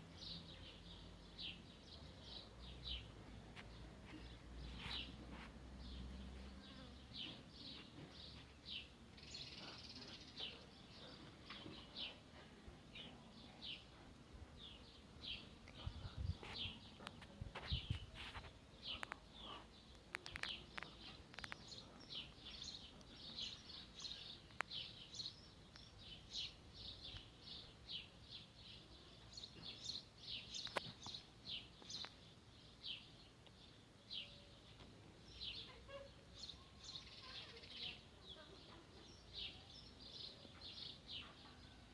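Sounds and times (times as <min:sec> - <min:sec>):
small birds chirping: 0:00.0 - 0:41.9
faint clicks: 0:19.9 - 0:21.8.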